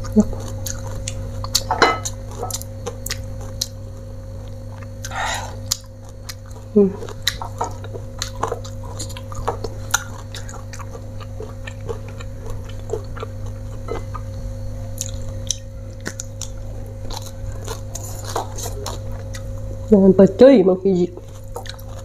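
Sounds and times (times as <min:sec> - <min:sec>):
person chewing and biting food: 0:00.0 - 0:19.8, 0:21.2 - 0:22.0
steady low hum: 0:00.0 - 0:22.0
crisp clicks and crunches: 0:15.0 - 0:19.6, 0:21.2 - 0:22.0.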